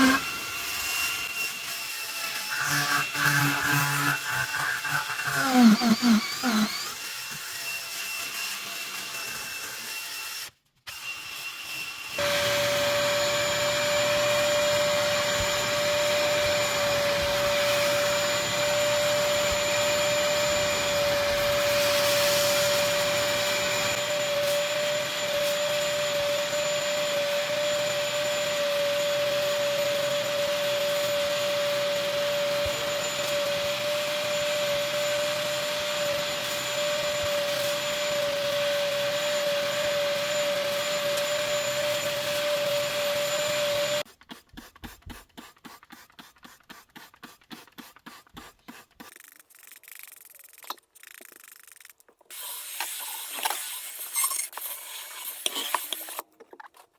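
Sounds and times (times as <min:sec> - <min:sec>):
vacuum cleaner whining: 0:00.0 - 0:44.1.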